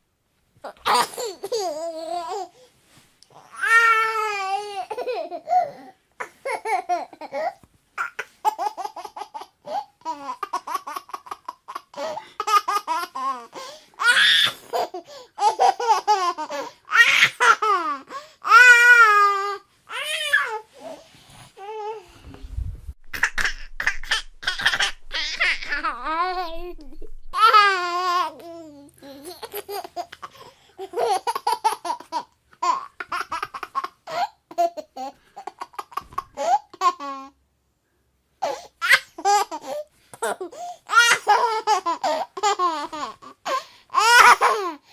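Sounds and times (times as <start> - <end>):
baby laughing: 3.6 - 19.4, 23.1 - 37.3, 38.8 - 44.8
baby squealing: 23.1 - 28.2.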